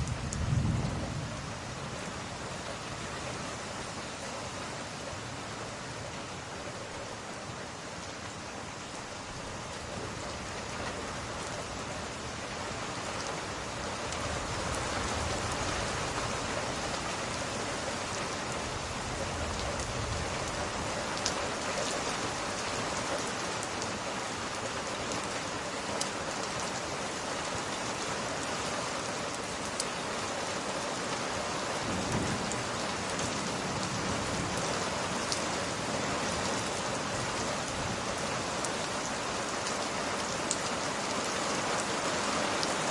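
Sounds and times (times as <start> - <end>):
distant thunder rumbles: 0.0 - 1.7
rain falling: 0.0 - 42.9.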